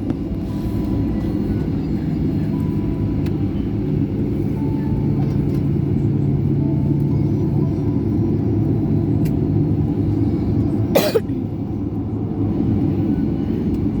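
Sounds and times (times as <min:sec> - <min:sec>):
airliner cabin rumble: 0:00.0 - 0:14.0
person coughing: 0:10.9 - 0:11.4.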